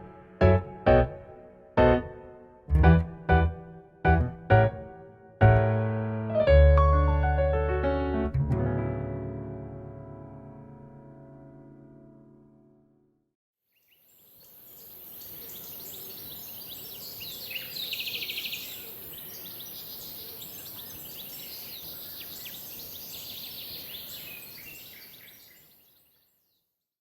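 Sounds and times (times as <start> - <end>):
birds chirping: 13.8 - 26.2.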